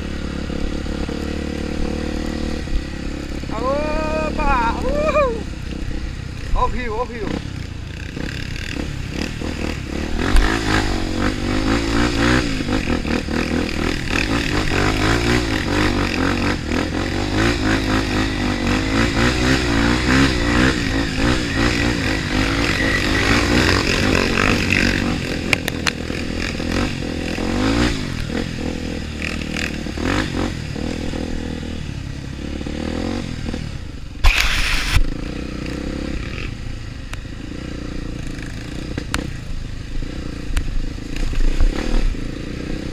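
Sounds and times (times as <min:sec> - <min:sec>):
motorcycle engine revving: 0:00.0 - 0:42.9
short loud burst of noise: 0:34.2 - 0:35.1.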